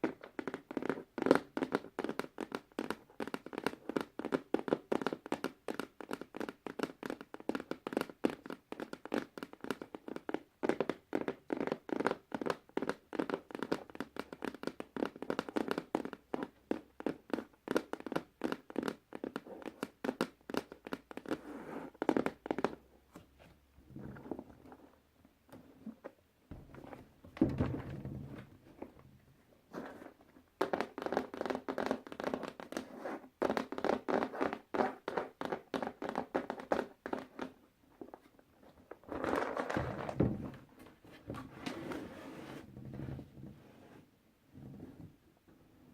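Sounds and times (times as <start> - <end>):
dull thump: 26.5 - 28.5.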